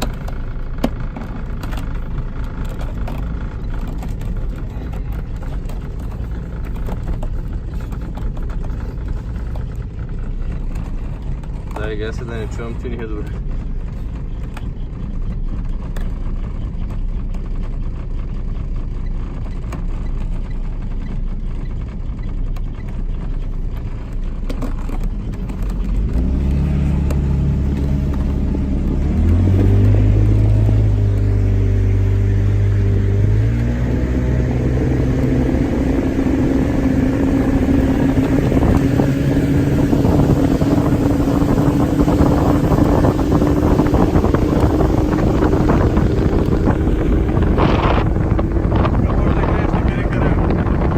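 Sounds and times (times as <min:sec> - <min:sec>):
speedboat engine: 0:00.0 - 0:50.9
wind and water rushing: 0:26.1 - 0:50.9.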